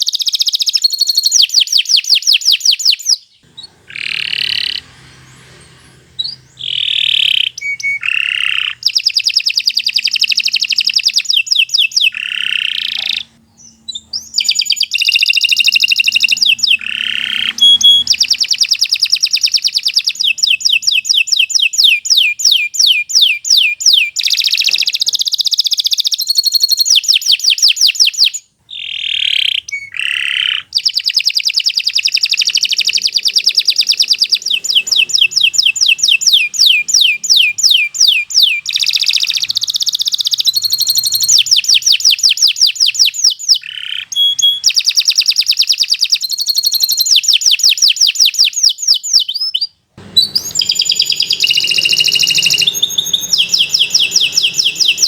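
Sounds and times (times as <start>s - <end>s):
canary singing trills: 0.0s - 55.0s
lower swooping bird notes: 3.4s - 11.0s, 12.0s - 19.4s, 32.3s - 41.7s, 50.0s - 55.0s.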